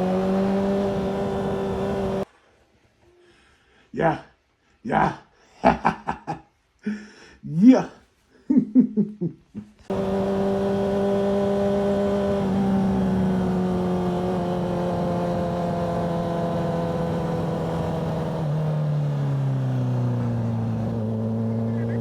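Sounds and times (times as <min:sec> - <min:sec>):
motorcycle engine running: 0:00.0 - 0:02.2, 0:09.9 - 0:22.0.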